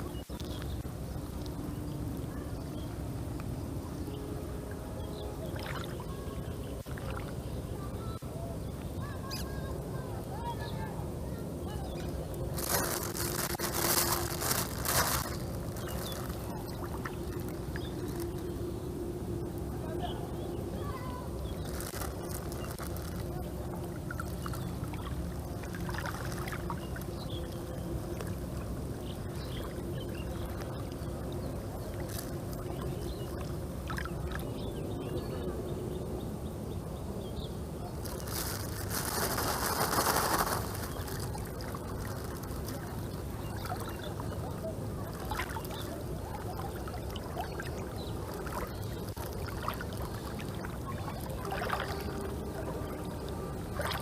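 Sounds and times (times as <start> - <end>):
water trickling and sloshing: 0.0 - 35.5, 37.8 - 54.0.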